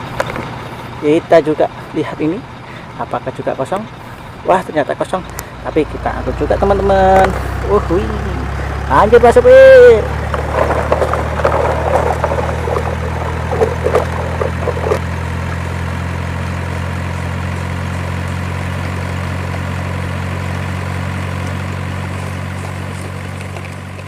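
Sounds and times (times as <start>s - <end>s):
truck engine idling: 0.0s - 24.0s
clicks and clatter: 10.0s - 15.2s, 22.2s - 24.0s.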